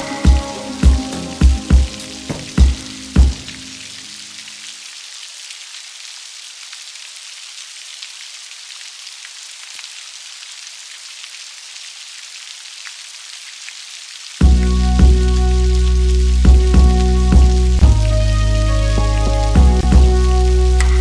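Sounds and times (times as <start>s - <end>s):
raindrops ticking: 0.0s - 4.8s, 14.4s - 21.0s
steady rain hiss: 0.0s - 21.0s.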